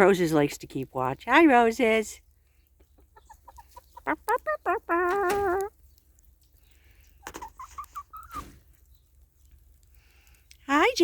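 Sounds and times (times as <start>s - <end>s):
hen clucking and squawking: 2.8s - 8.9s.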